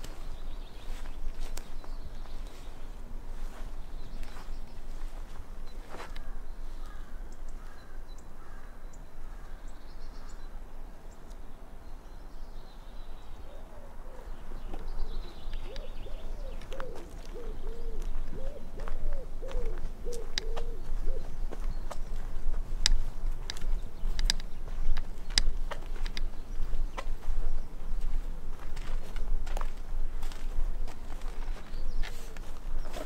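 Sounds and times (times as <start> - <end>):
bird hooting notes: 13.3 - 21.7
scattered clicks: 22.8 - 26.3.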